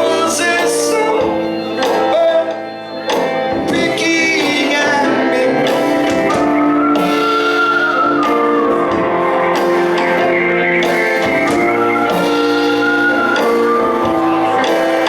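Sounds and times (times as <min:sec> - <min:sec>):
live band playing instrumental: 0:00.0 - 0:15.0
sliding guitar melody: 0:00.0 - 0:15.0.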